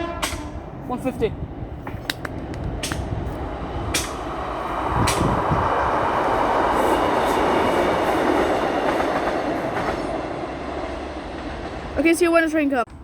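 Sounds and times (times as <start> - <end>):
train rumbling past: 0.0 - 13.0
sharp clicks: 2.0 - 3.0.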